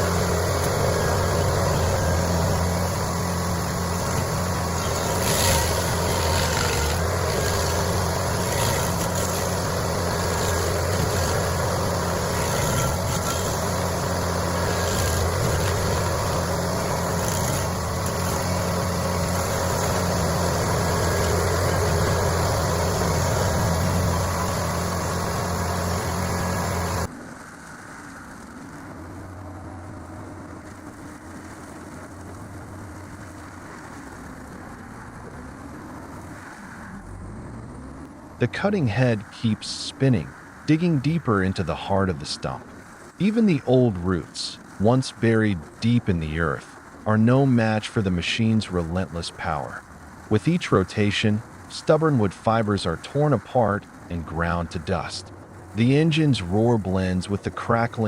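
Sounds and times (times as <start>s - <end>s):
stump grinder grinding: 0.0s - 27.1s.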